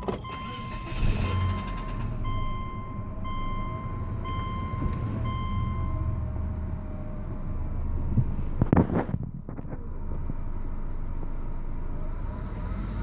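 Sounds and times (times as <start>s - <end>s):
dashboard warning chime: 0.0s - 6.1s.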